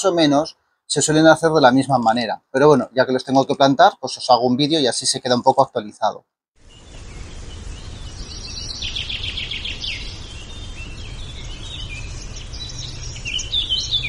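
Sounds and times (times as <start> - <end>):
bird trill: 6.6 - 14.0
birds chirping and singing: 6.6 - 14.0
steady low rumble: 6.7 - 14.0.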